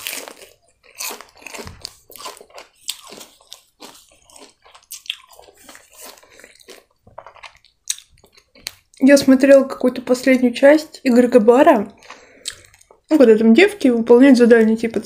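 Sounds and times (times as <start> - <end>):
person crunching chicken nugget: 0.0 - 9.0.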